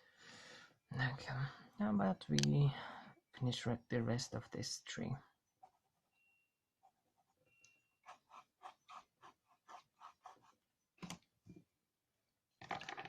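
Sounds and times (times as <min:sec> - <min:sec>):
pencil scratching on paper: 0:08.0 - 0:10.6.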